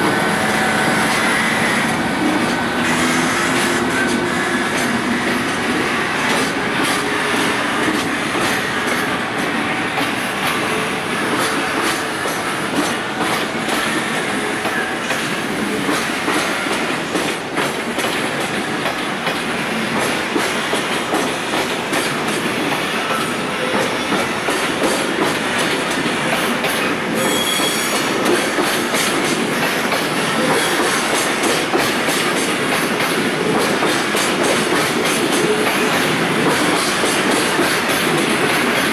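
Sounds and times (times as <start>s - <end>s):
freight train rolling past: 0.0s - 38.9s
train wheel squeal: 0.0s - 38.9s
wheels clicking over rail joints: 15.9s - 38.9s.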